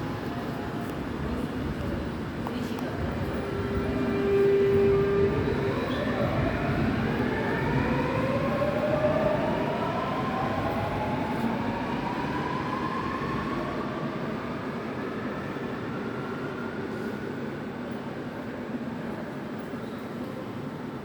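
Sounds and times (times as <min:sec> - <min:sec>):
train wheels rumbling on track: 0:00.0 - 0:13.1.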